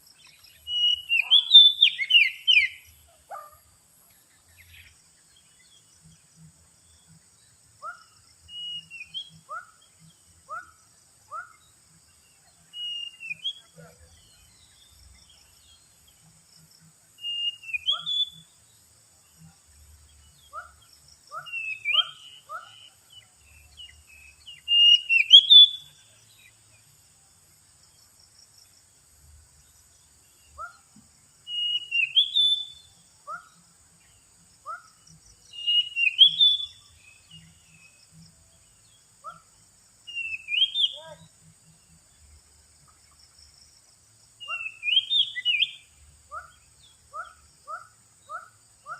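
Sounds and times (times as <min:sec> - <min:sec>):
bird whistling song: 0:00.2 - 0:03.0, 0:07.8 - 0:09.8, 0:12.6 - 0:14.8, 0:17.2 - 0:18.5, 0:20.5 - 0:26.5, 0:31.4 - 0:33.5, 0:34.7 - 0:38.0, 0:39.2 - 0:41.2, 0:44.4 - 0:48.9.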